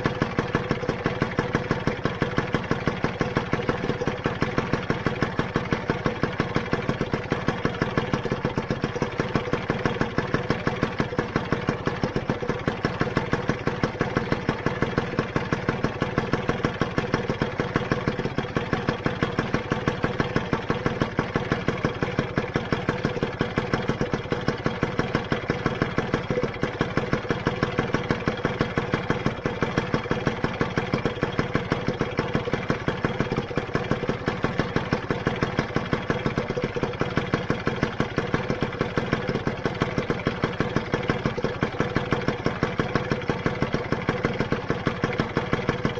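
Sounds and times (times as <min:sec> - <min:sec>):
two-stroke engine idling: 0:00.0 - 0:45.9.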